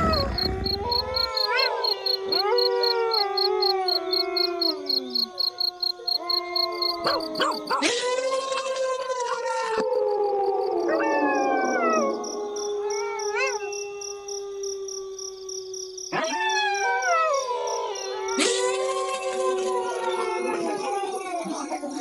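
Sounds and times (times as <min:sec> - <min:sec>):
rising and falling animal call: 0:00.0 - 0:08.0
wolves howling: 0:00.0 - 0:08.2, 0:09.4 - 0:21.9.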